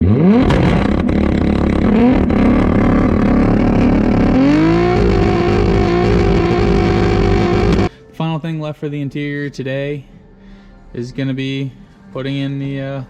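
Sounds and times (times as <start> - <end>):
turbocharged car engine accelerating: 0.0 - 7.9.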